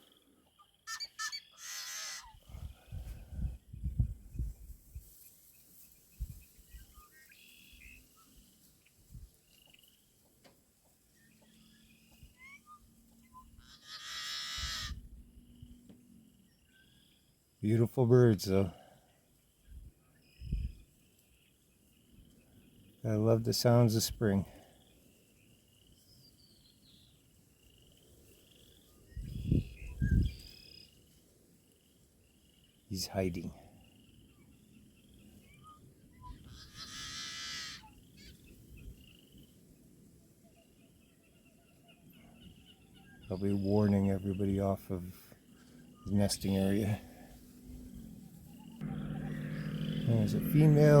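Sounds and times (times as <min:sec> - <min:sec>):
higher bird calls: 0:00.0 - 0:02.6, 0:11.3 - 0:15.2, 0:34.0 - 0:39.4, 0:45.4 - 0:51.0
harsh buzzing bird song: 0:11.3 - 0:17.5, 0:19.6 - 0:23.0, 0:25.0 - 0:31.0, 0:47.7 - 0:51.0
buzzy frog trills: 0:48.6 - 0:51.0.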